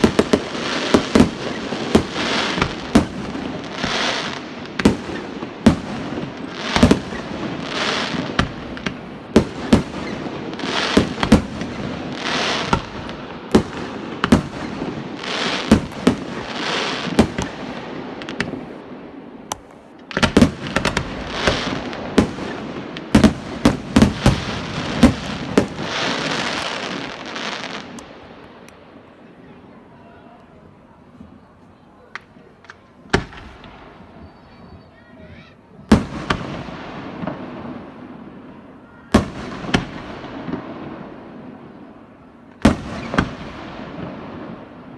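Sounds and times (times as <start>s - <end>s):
firework shells bursting: 0.0s - 18.8s, 19.4s - 28.8s
firework hiss: 0.0s - 28.2s.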